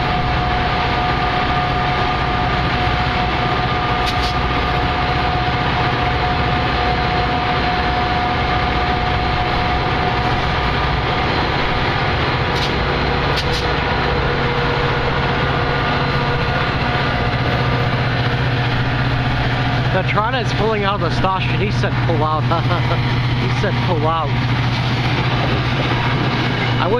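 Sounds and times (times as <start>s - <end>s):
diesel locomotive engine drone: 0.0s - 26.9s.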